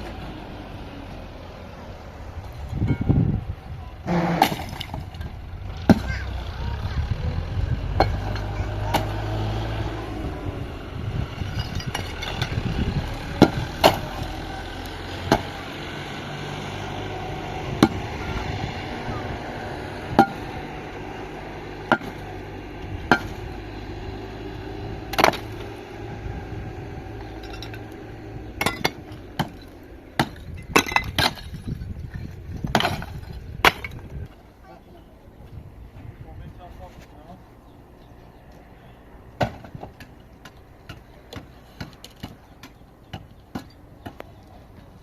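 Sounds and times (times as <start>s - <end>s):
low engine rumble: 0.0s - 45.0s.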